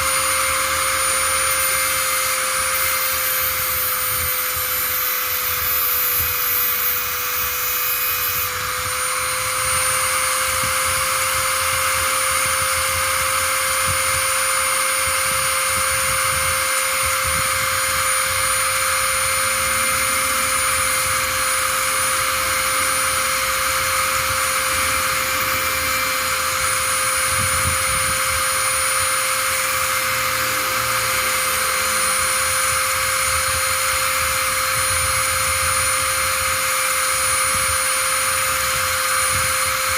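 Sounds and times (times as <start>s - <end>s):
small electric motor whining: 0.0s - 39.9s.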